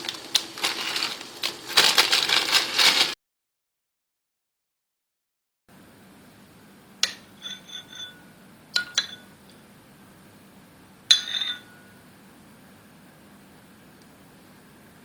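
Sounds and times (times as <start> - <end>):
dishes clinking: 7.0 - 9.4, 11.1 - 12.0.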